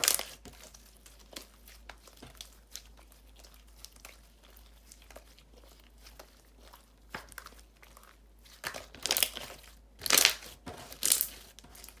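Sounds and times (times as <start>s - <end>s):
slime squishing with crackling pops: 0.0s - 12.0s.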